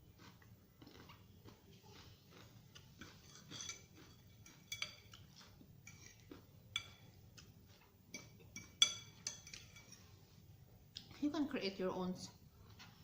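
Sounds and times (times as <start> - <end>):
metal utensil clinking on dish: 3.0 - 5.2, 8.1 - 10.1.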